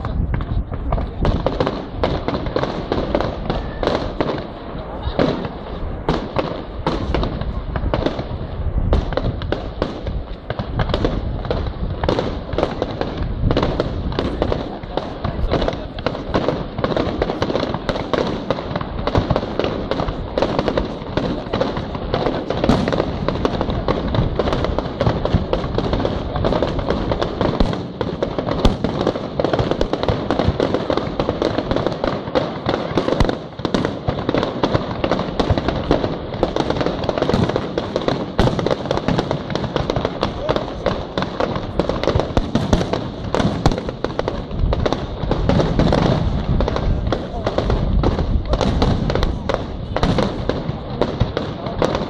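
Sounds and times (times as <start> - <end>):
fireworks bangs and crackling: 0.0 - 52.0.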